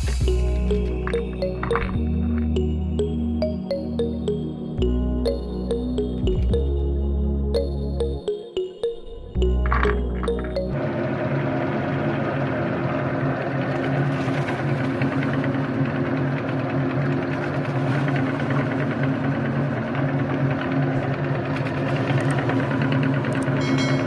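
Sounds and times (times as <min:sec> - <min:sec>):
electric meat grinder humming: 0:10.4 - 0:24.0.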